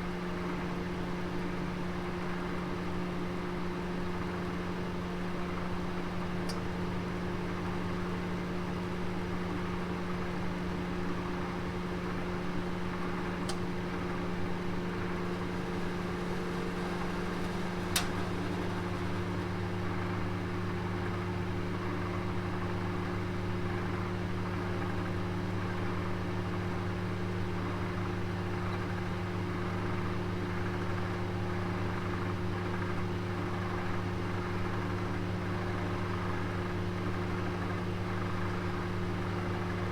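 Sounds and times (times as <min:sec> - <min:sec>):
oven humming: 0:00.2 - 0:36.7
faint clicks: 0:16.5 - 0:18.6.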